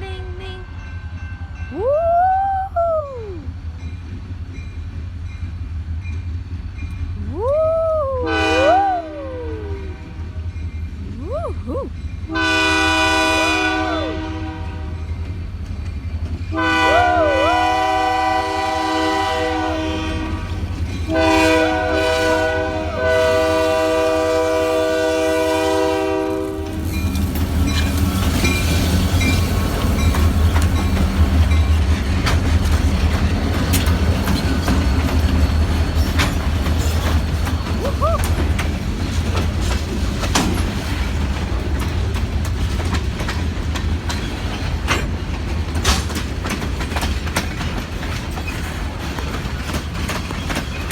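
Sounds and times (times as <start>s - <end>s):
train rumble: 0.0s - 50.9s
rail cars clickety-clack: 3.6s - 7.3s, 10.4s - 11.2s, 11.9s - 50.9s
locomotive horn blasts: 8.3s - 8.8s, 12.3s - 15.0s, 16.5s - 26.8s.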